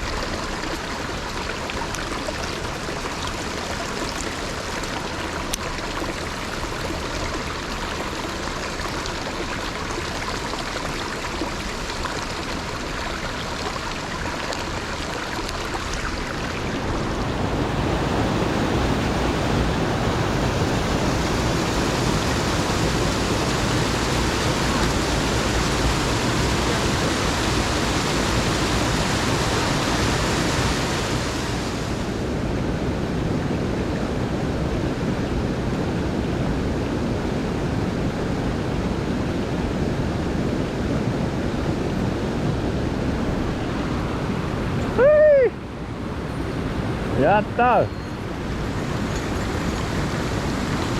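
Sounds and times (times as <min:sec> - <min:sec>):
mountain stream rushing: 0:00.0 - 0:50.9.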